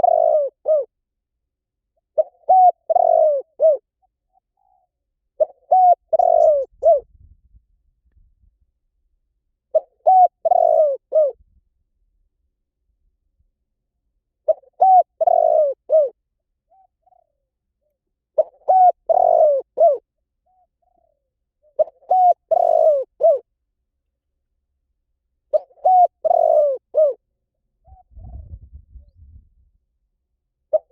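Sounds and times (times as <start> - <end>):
dove cooing: 0.0 - 0.9, 2.0 - 7.1, 9.7 - 11.4, 14.4 - 23.5, 25.5 - 27.2, 27.8 - 29.1.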